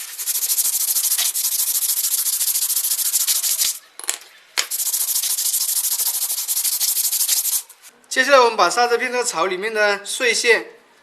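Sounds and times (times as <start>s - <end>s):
sandpaper scraping brake pad: 0.0s - 3.8s, 4.6s - 7.8s.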